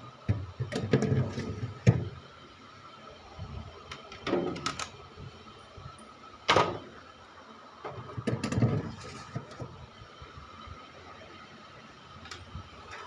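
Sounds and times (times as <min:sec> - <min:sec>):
knocks and scrapes in fridge: 0:00.3 - 0:02.2.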